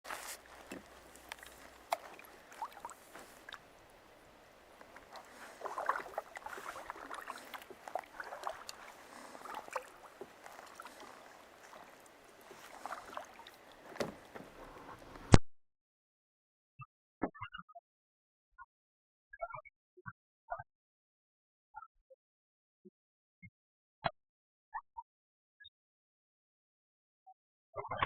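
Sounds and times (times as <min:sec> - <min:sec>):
paddle splashing water: 0:00.0 - 0:15.3.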